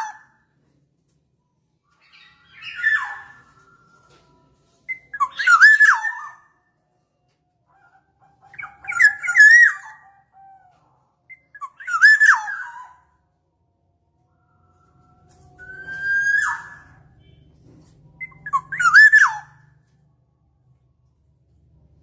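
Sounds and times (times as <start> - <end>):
oriole whistled calls: 2.0 - 4.2, 4.9 - 6.5, 7.7 - 10.7, 11.3 - 13.1, 14.8 - 17.3, 18.2 - 19.7.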